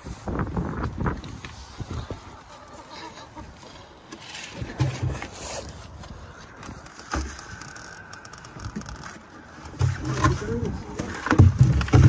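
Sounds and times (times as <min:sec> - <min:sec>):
wind buffeting microphone: 0:00.0 - 0:02.4.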